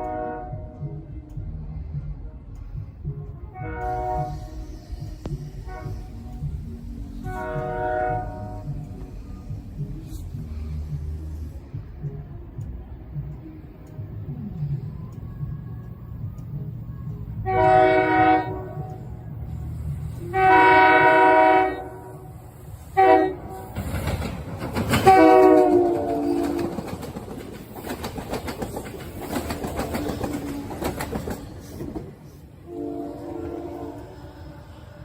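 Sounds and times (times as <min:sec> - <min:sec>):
train horn blasts: 0:00.0 - 0:00.9, 0:03.5 - 0:06.5, 0:07.2 - 0:08.9, 0:17.4 - 0:19.0, 0:20.2 - 0:23.8, 0:25.0 - 0:26.8, 0:32.6 - 0:34.9
low rumble of train: 0:00.0 - 0:35.0
train wheels clacking over rail joints: 0:23.4 - 0:32.4.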